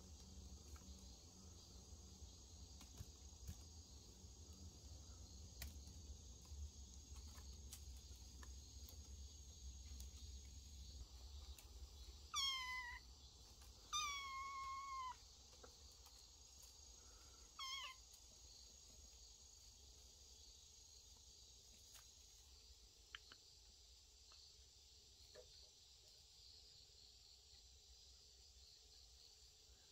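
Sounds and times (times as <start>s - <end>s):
kitten meowing: 12.3s - 13.0s, 13.9s - 15.2s, 17.6s - 18.0s.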